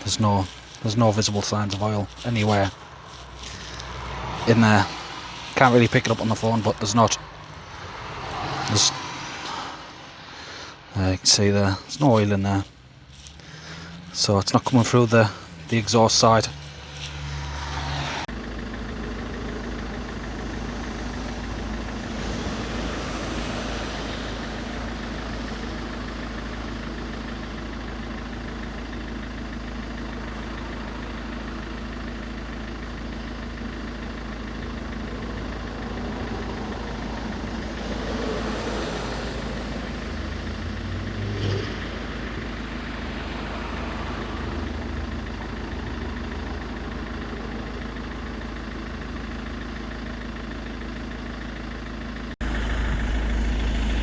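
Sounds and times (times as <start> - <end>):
diesel van engine idling: 0.0 - 54.0
engine knock: 24.7 - 38.6, 39.6 - 54.0.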